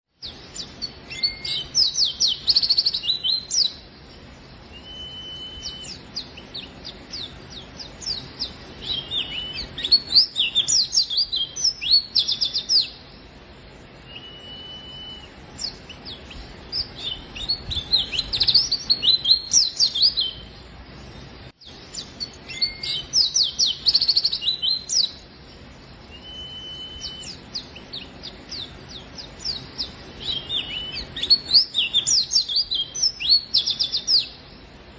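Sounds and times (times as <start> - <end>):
level bird whistle: 0.2 - 13.2, 14.0 - 20.6, 21.6 - 34.7
bird chirping rapidly: 0.2 - 20.7, 21.6 - 34.8.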